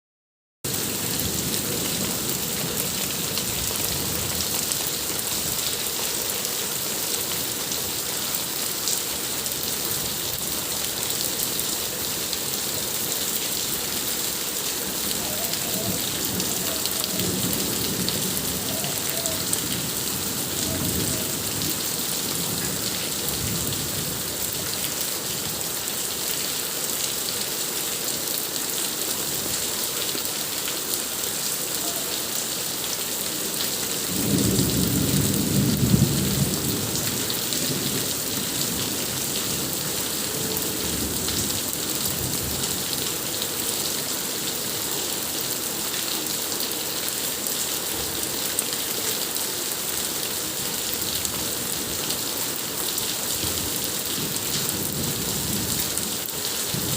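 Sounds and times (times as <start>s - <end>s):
heavy rain falling: 0.7s - 56.9s
thunder rumbling: 15.2s - 23.8s.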